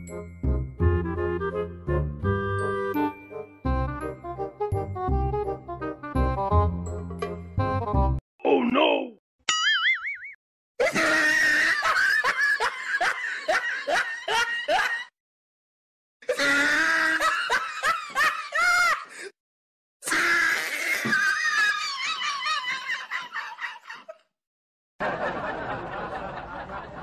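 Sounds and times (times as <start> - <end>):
comedy laughter sound effect: 10.8 - 15.1.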